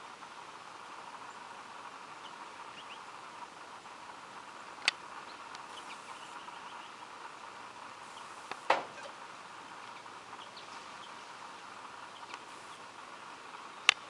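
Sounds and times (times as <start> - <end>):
background hiss: 0.0 - 14.0
faint bird chirps: 2.2 - 3.2, 5.2 - 7.2, 8.0 - 9.2, 9.8 - 13.0.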